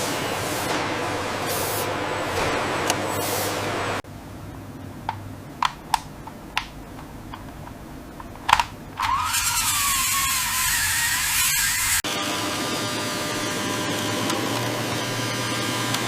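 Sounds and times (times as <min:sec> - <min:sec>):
sharp clicks and snaps: 0:05.0 - 0:09.2.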